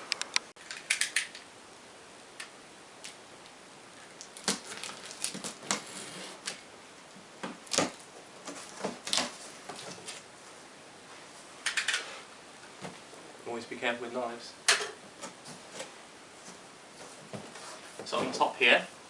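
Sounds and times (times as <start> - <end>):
knife slitting cellophane: 4.4 - 6.6.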